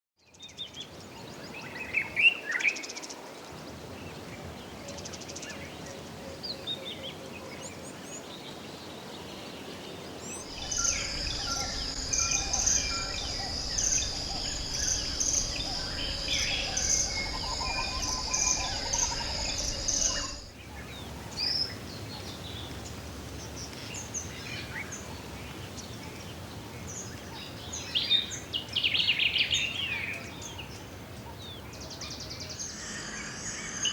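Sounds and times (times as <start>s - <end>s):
steady background noise: 10.3s - 23.9s
bird chirps and calls: 10.4s - 20.5s
loud high insect chorus: 10.4s - 20.6s, 32.2s - 33.9s.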